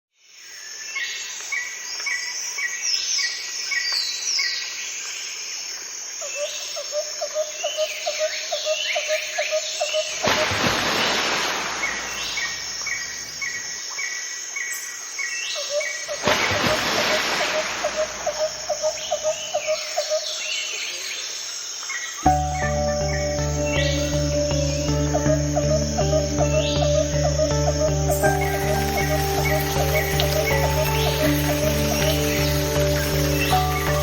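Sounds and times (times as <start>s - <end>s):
birds chirping and whistling: 22.3s - 34.0s.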